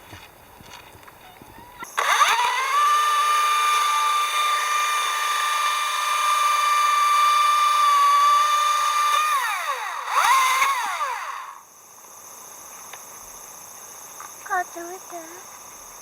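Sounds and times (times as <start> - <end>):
chainsaw revving: 1.8 - 11.6.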